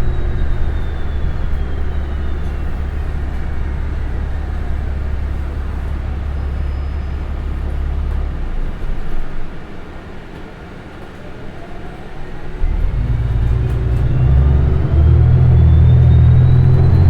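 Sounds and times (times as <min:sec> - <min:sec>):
faint whine falling in pitch: 0:00.0 - 0:09.0, 0:12.6 - 0:17.0
bus engine rumble: 0:00.0 - 0:17.0.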